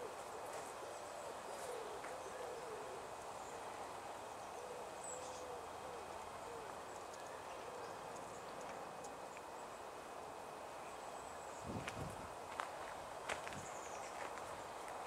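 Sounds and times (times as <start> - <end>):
bird cooing: 0.0 - 8.5
steady background hiss: 0.0 - 15.0.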